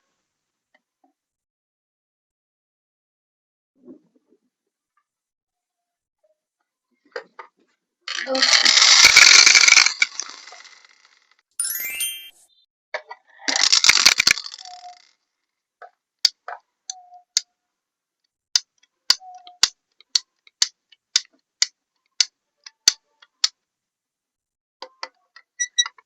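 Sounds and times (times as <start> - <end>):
small hard objects clicking: 8.1 - 11.2, 13.6 - 15.1.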